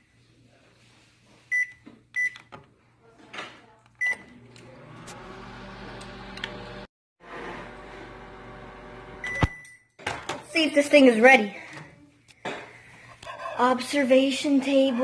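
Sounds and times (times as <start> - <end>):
microwave humming: 4.1 - 9.5.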